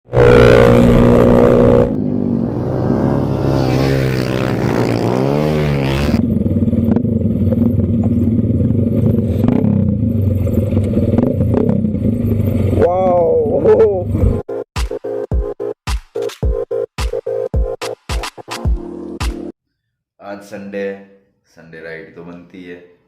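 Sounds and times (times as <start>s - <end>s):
motorcycle engine running: 0.0s - 14.4s
engine clatter and clicks: 6.4s - 12.8s.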